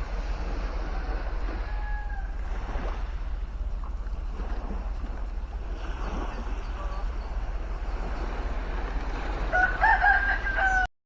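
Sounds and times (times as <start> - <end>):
wind and water noise: 0.0 - 10.9
rooster crowing: 0.9 - 2.4, 9.5 - 10.9.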